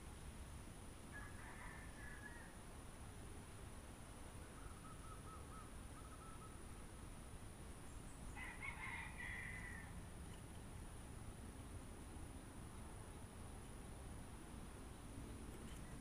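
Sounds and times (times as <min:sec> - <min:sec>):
bird chirps: 0:04.5 - 0:06.6.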